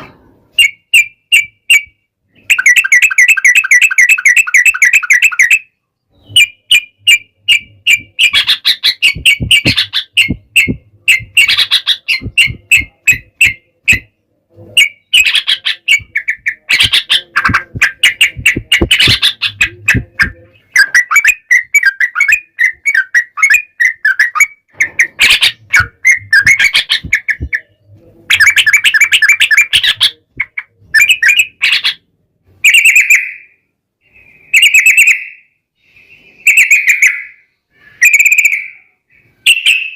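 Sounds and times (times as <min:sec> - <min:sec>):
bulbuls singing chattering phrases: 0:06.2 - 0:32.0.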